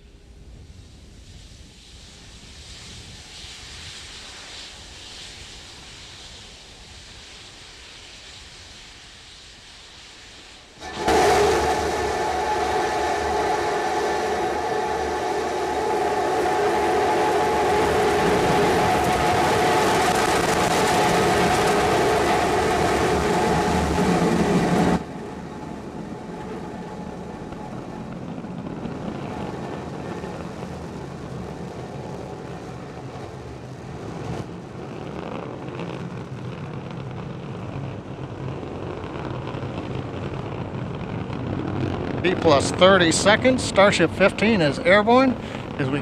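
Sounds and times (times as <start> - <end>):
rocket engine rumble: 10.4 - 46.0.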